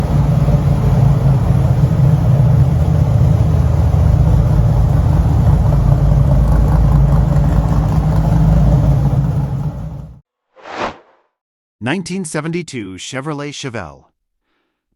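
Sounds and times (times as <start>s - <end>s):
car engine running: 0.0s - 10.2s.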